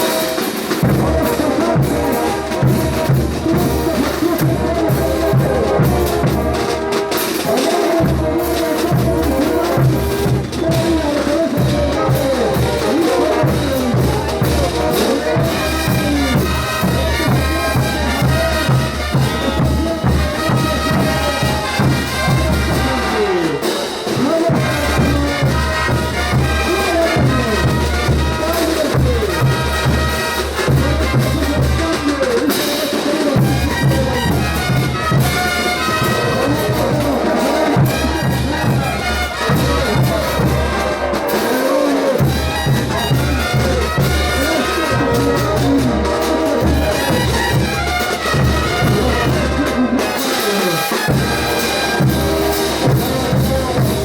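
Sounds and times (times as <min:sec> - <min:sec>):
bass drum and percussion: 0:00.0 - 0:54.0
brass band playing: 0:00.0 - 0:54.0.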